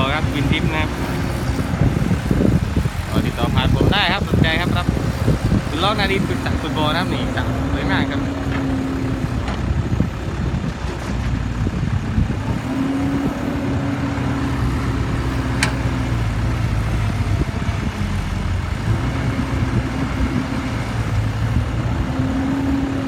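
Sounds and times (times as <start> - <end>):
diesel engine running: 0.0 - 23.0
sharp click: 15.6 - 15.8.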